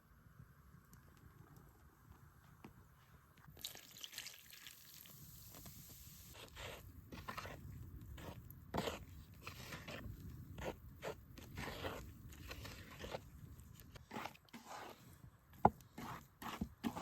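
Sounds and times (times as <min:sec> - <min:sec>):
crunches and scrapes: 0:05.5 - 0:17.0.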